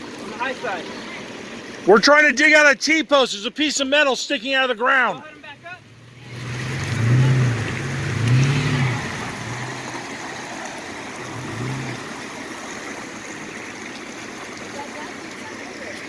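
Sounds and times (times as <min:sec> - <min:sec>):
rushing river water: 0:00.0 - 0:16.0
off-road vehicle engine revving: 0:05.4 - 0:13.8.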